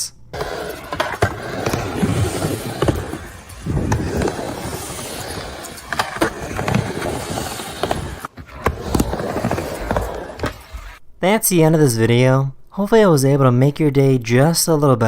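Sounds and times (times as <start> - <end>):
skateboard wheels rolling: 0.3 - 11.0
skateboard clacks: 0.4 - 11.0.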